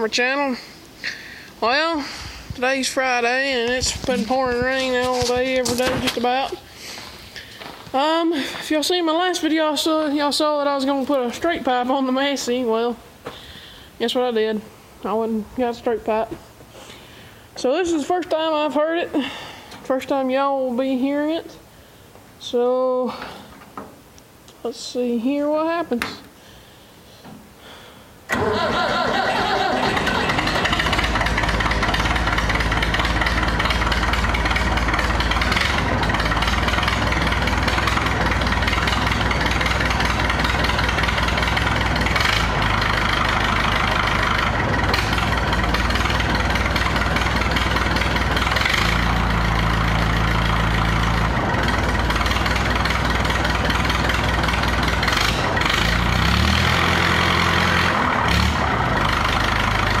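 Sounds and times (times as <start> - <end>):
tractor engine idling: 0.0 - 14.4, 28.2 - 60.0.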